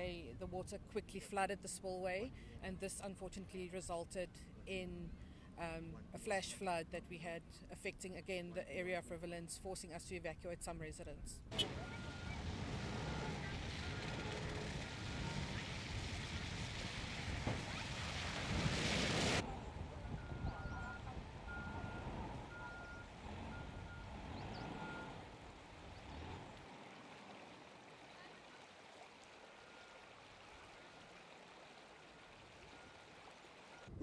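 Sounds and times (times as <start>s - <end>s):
vehicle reversing alarm beeping: 11.5s - 15.6s, 19.9s - 25.3s, 29.6s - 30.0s
low engine rumble: 11.5s - 18.6s, 19.3s - 28.5s.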